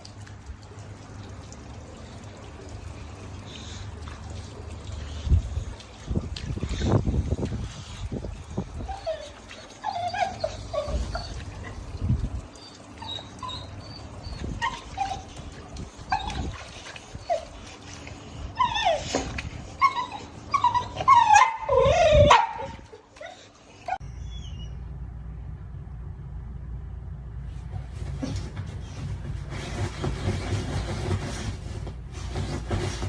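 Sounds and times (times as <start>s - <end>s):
dog whining and whimpering: 6.5s - 24.8s.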